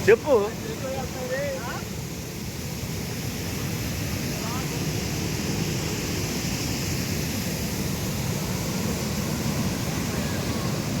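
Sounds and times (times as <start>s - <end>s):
rush of falling water: 0.0s - 11.0s.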